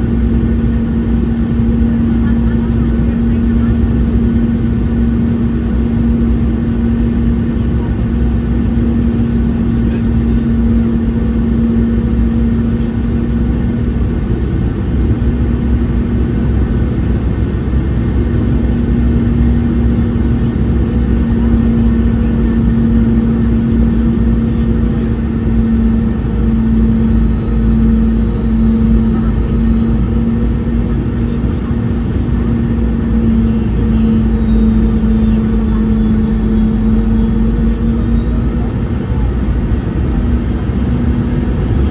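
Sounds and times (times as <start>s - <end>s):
aircraft cabin rumble: 0.0s - 41.9s
faint high engine whines: 0.0s - 41.9s.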